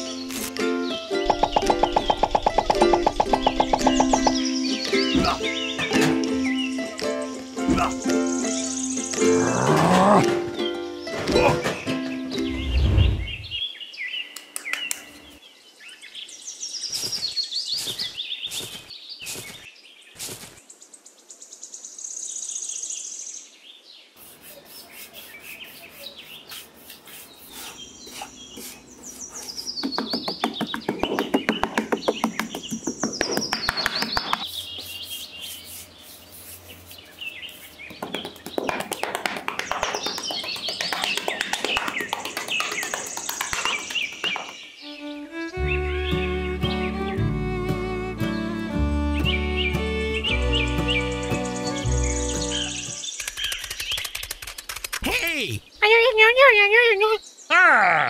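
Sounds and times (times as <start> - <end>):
small birds chirping: 0.0 - 58.0
hand hoe scraping through sand: 16.9 - 20.6, 24.2 - 29.8, 34.4 - 37.9.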